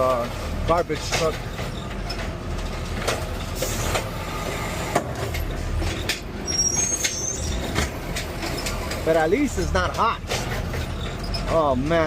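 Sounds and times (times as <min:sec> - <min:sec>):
knocks and rattles: 0:00.0 - 0:04.2, 0:04.9 - 0:12.0
truck engine drone: 0:00.0 - 0:12.0
high-pitched squeal: 0:06.4 - 0:07.7.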